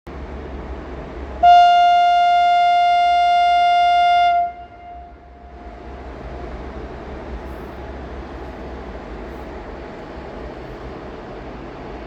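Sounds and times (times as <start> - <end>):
locomotive horn blast: 1.4 - 5.6.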